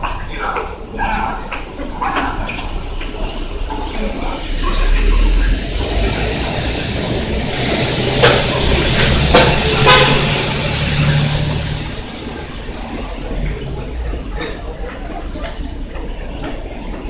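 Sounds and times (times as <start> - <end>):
electric train rumbling past: 2.8 - 15.3.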